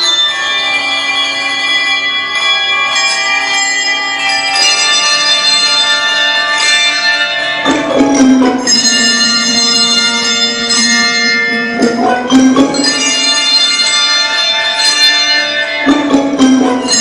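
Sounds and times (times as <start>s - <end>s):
handbell choir playing: 0.0s - 17.0s.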